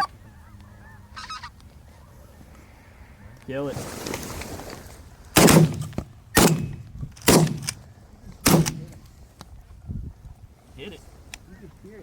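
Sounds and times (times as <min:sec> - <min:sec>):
shotgun shots: 0:05.4 - 0:07.8, 0:08.4 - 0:09.0.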